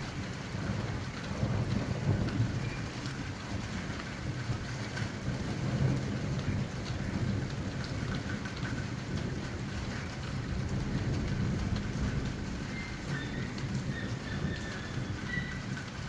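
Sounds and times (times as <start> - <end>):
heavy rain pouring: 0.0 - 16.0
low thunder rumble: 0.2 - 16.0.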